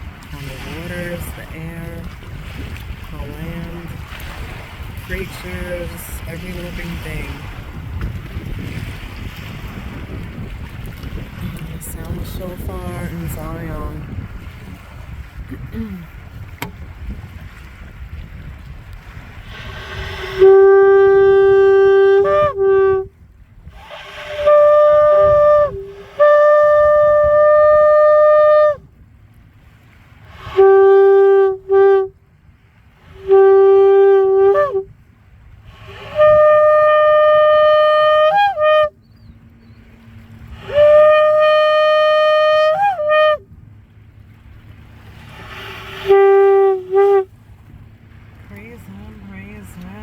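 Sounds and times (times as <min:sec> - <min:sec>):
shofar blasts: 0:19.4 - 0:28.8, 0:30.3 - 0:32.2, 0:33.1 - 0:34.9, 0:35.7 - 0:39.0, 0:40.4 - 0:43.5, 0:45.4 - 0:47.3.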